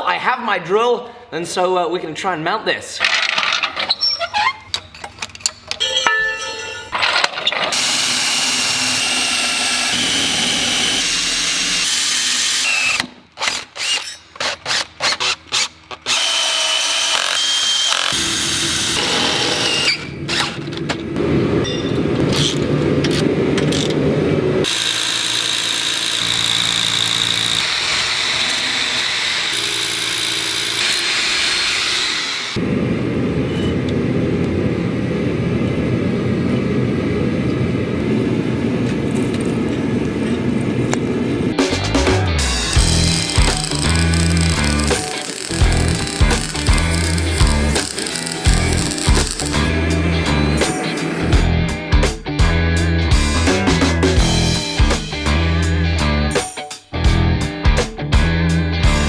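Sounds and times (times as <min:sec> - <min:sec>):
power drill drilling into concrete: 0:07.7 - 0:20.5, 0:24.6 - 0:32.6, 0:42.7 - 0:51.3.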